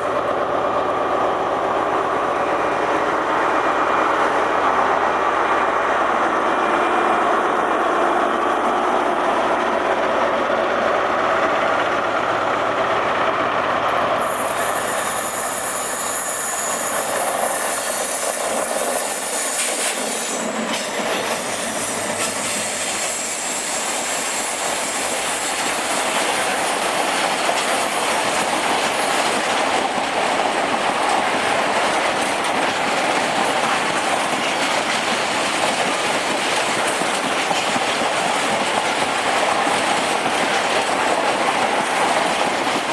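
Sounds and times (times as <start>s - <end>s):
train wheels on rails: 0.0s - 42.9s.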